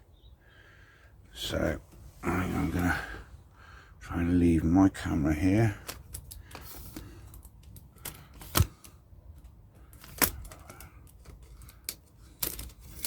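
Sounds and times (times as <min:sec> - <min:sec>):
clicks and knocks of objects handled: 0:05.8 - 0:13.0.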